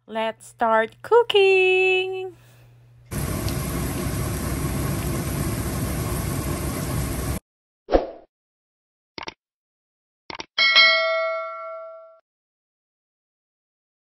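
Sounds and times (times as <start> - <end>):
vegetables sizzling in hot oil: 3.1 - 7.4.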